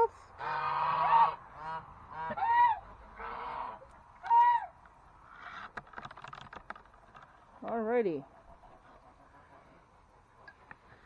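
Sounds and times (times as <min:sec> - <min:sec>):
geese honking: 0:00.4 - 0:04.7.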